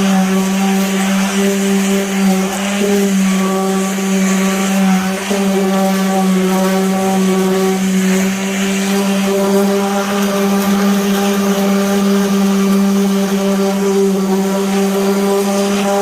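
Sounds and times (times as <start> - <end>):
power sander running: 0.0 - 16.0.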